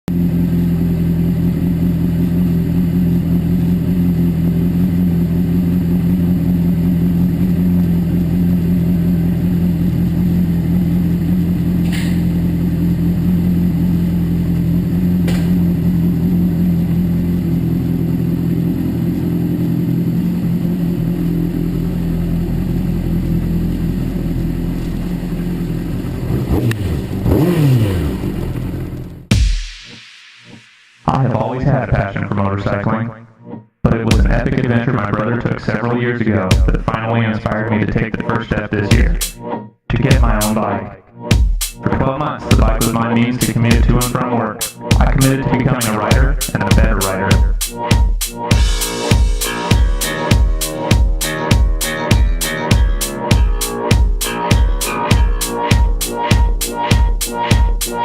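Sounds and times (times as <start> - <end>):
motorcycle engine running: 0.0 - 29.5, 34.0 - 35.3, 42.5 - 44.2, 44.9 - 58.0.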